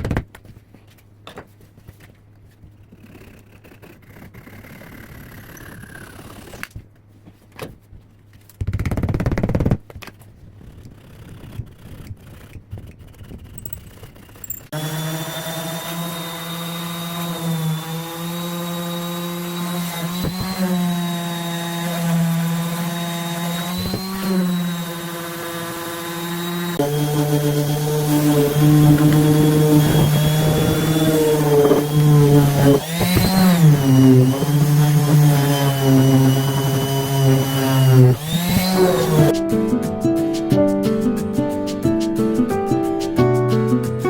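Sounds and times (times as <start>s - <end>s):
electric power tool motor humming: 14.7s - 39.4s.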